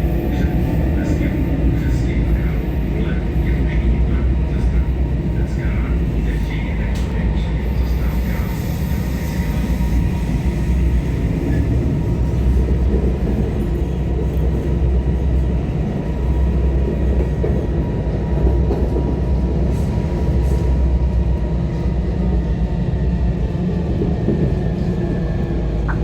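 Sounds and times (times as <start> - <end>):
tram wheels rumbling on rail: 0.0 - 26.0.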